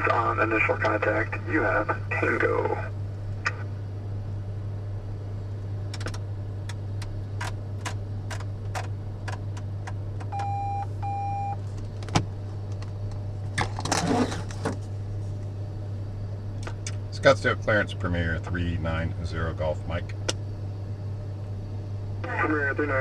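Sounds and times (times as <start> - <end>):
cockpit low hum: 0.0 - 23.0.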